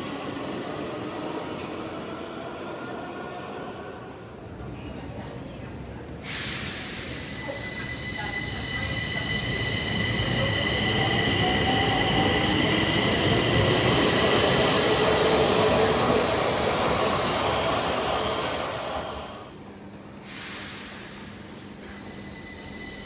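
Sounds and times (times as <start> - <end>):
train running on rails: 0.0 - 23.0
high-pitched wheel squeal: 21.9 - 23.0.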